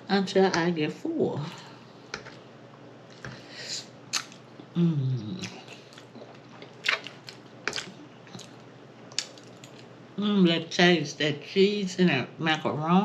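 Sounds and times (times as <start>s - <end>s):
lip smacks: 4.1s - 4.7s
wet chewing: 4.1s - 4.7s, 5.3s - 9.9s.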